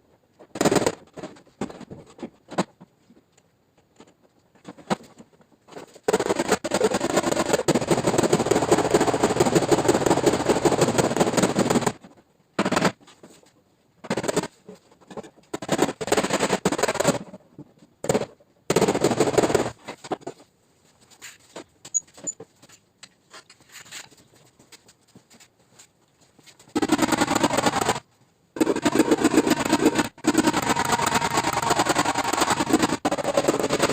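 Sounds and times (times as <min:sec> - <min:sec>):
rapid mechanical rattling: 0:26.7 - 0:28.0, 0:28.6 - 0:33.9.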